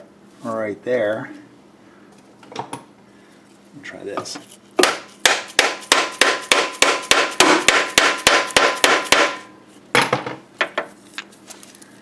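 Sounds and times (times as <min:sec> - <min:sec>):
hammer tapping: 0:04.8 - 0:09.5.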